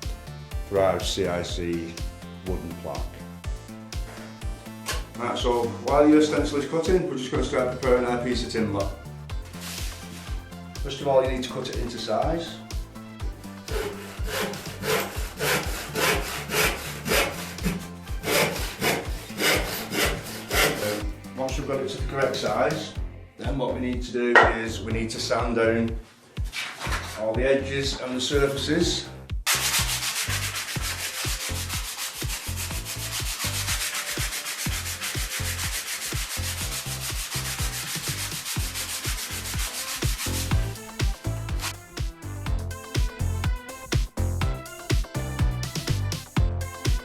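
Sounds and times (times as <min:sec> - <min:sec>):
sandpaper rubbing on wood: 0:07.6 - 0:12.2, 0:13.5 - 0:22.5, 0:29.5 - 0:41.9
handsaw cutting timber: 0:09.4 - 0:10.5, 0:13.6 - 0:21.2, 0:29.5 - 0:41.8.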